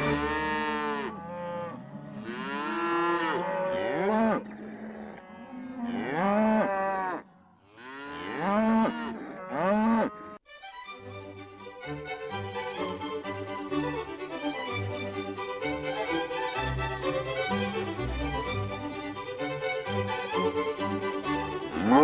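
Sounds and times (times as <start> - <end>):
violin music: 0.0 - 0.7, 10.5 - 22.0
cattle mooing: 0.0 - 10.4, 21.7 - 22.0.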